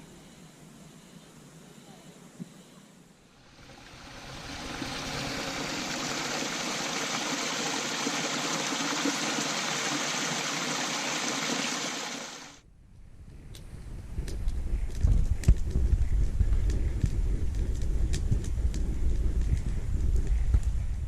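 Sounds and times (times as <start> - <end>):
rushing water: 3.5 - 12.6.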